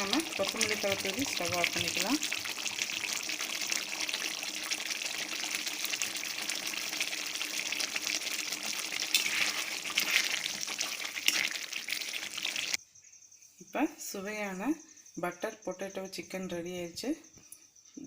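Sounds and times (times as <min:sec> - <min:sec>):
gravy sizzling in a pan: 0:00.0 - 0:12.8.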